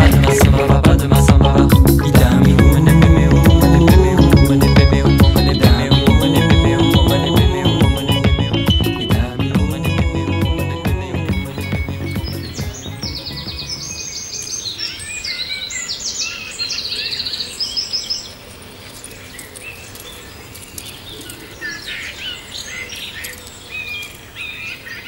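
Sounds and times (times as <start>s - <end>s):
songbirds trilling and chirping: 0.0s - 9.5s, 11.2s - 25.0s.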